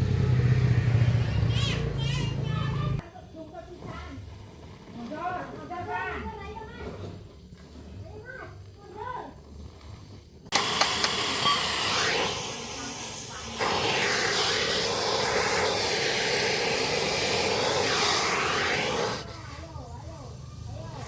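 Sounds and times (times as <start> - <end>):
steady pressurised hiss: 9.7 - 21.0.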